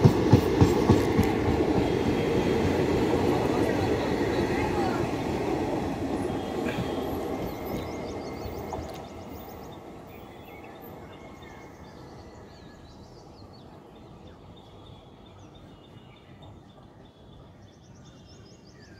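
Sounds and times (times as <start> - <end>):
passenger train rumbling: 0.0 - 17.6
birds chirping: 0.6 - 18.9.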